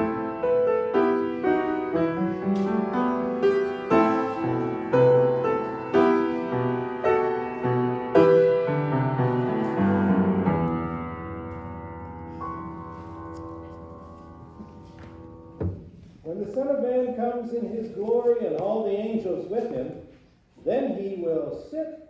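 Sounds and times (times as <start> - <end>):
piano playing slow chords: 0.0 - 16.3.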